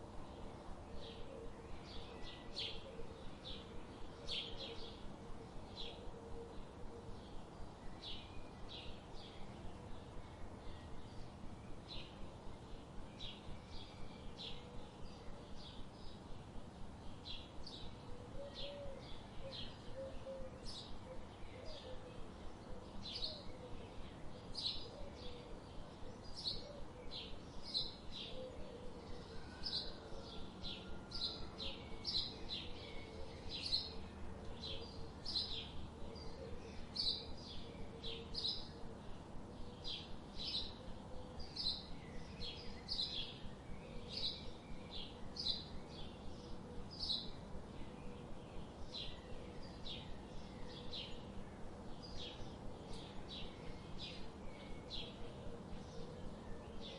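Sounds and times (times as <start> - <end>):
bird chirping: 17.1 - 56.9.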